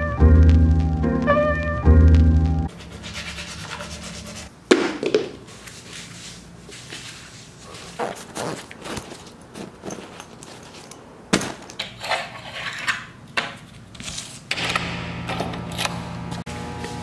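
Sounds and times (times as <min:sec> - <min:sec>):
music: 0:00.0 - 0:02.7
household objects clattering: 0:08.7 - 0:13.1.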